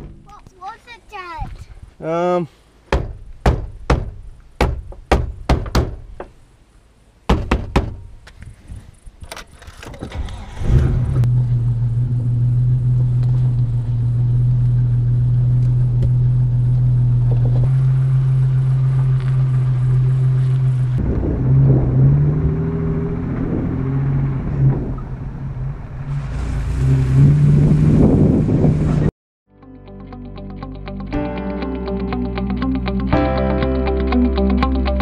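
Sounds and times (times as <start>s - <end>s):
sharp knocks and thuds: 0.0s - 0.5s, 2.9s - 6.4s, 7.3s - 8.4s
engine starting and idling: 9.5s - 12.3s.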